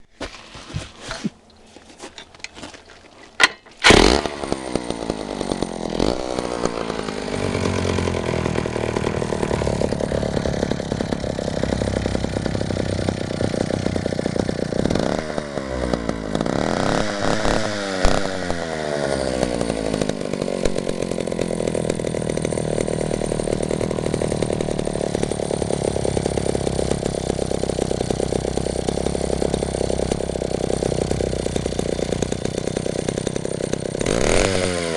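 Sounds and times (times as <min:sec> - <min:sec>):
clicks and knocks: 0:03.3 - 0:03.9
chainsaw engine revving: 0:03.4 - 0:34.9.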